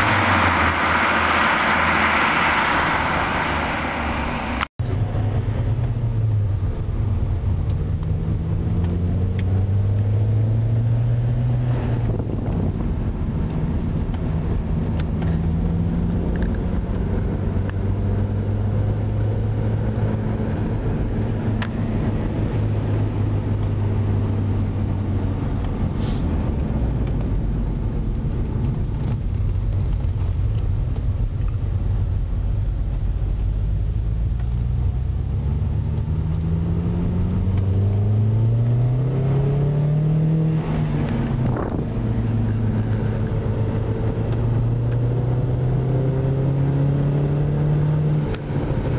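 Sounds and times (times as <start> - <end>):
car exhaust low drone: 0.0 - 48.9.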